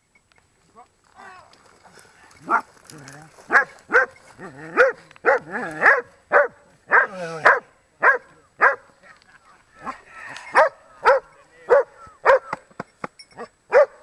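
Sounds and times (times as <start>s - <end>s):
dog barking: 3.5s - 8.9s, 9.8s - 12.6s, 13.4s - 14.0s.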